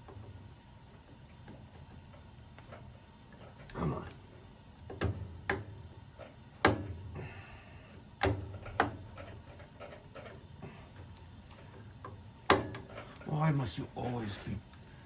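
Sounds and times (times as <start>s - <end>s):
sharp clicks and knocks: 8.2s - 10.4s, 11.4s - 13.3s.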